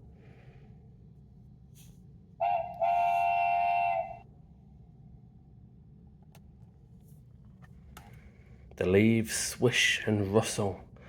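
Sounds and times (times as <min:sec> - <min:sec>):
steam train whistle: 0:02.4 - 0:04.2.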